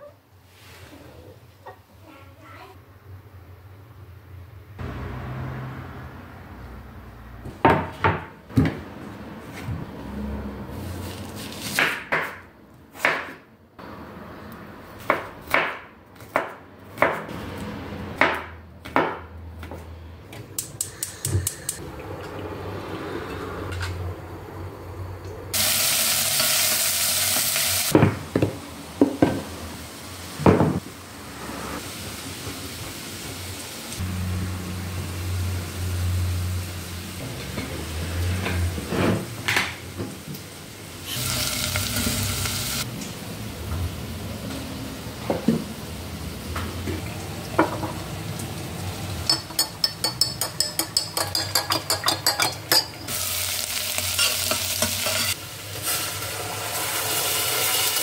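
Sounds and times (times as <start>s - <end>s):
loud hiss: 25.6s - 28.0s
dishes and pots clinking: 49.2s - 53.2s.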